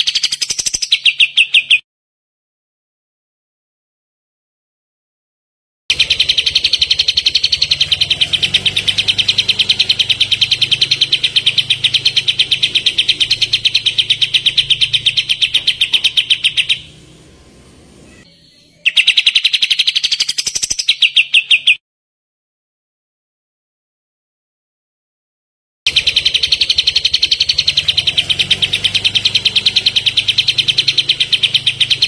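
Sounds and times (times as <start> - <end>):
songbird rapid trill: 0.0 - 1.8, 5.9 - 21.8, 25.9 - 32.0.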